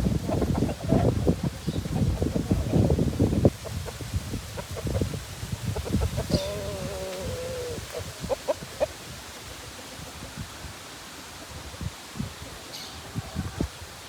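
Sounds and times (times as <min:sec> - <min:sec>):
chicken clucks: 0:00.0 - 0:09.0
chicken calling: 0:05.8 - 0:08.9.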